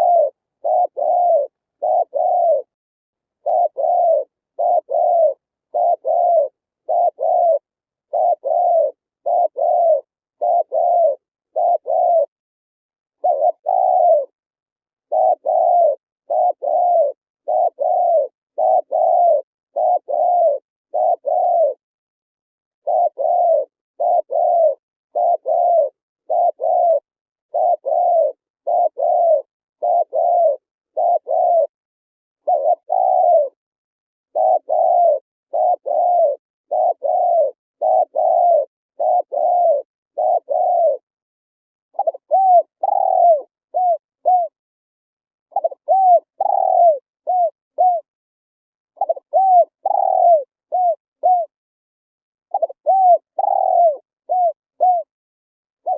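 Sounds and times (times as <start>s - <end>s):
dove cooing: 0.0s - 2.8s, 3.4s - 12.4s, 13.2s - 14.4s, 15.0s - 21.8s, 22.8s - 31.8s, 32.4s - 33.6s, 34.3s - 41.1s, 41.9s - 44.6s, 45.5s - 48.1s, 48.9s - 51.6s, 52.5s - 55.1s.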